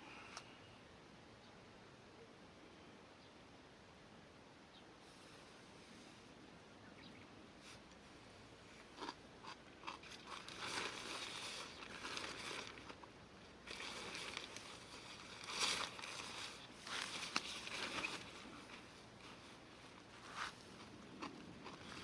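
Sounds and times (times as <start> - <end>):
rustling and crunching handling: 8.8 - 22.0.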